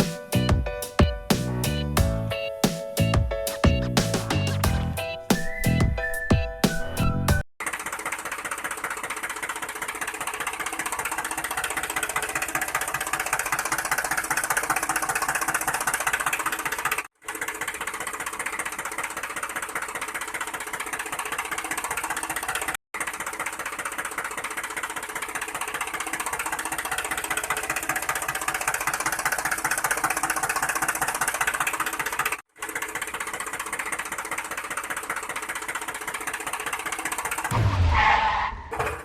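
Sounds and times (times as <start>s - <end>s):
small motor rattling: 7.6s - 37.5s.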